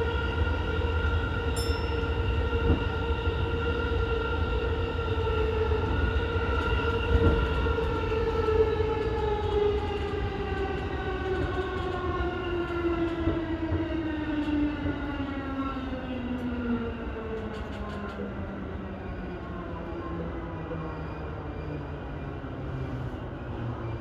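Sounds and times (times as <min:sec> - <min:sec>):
wheels rumbling on rail: 0:04.8 - 0:14.9.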